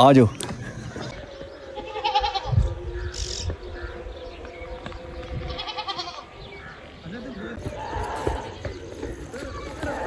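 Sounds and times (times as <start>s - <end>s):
sheep bleating: 1.8s - 2.6s, 5.4s - 6.3s.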